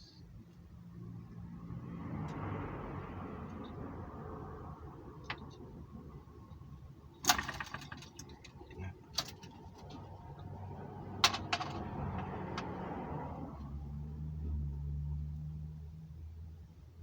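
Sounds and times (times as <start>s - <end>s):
model engine clicking and rattling: 7.2s - 9.8s.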